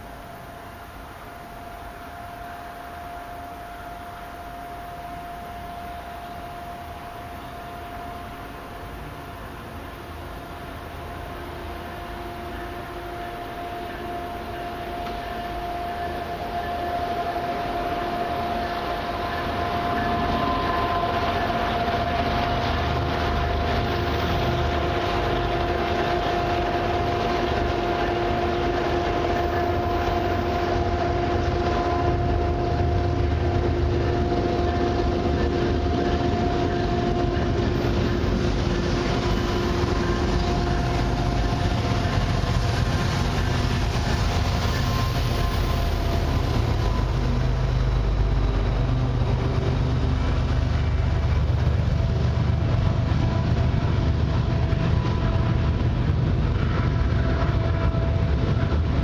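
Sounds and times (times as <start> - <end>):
freight train rumbling: 0.0 - 59.0
steady high-pitched tones: 0.0 - 59.0.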